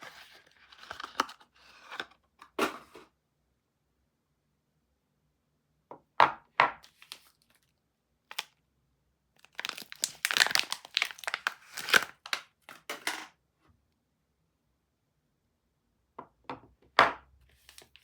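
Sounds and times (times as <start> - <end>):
packaging crinkling and tearing: 9.4 - 12.9.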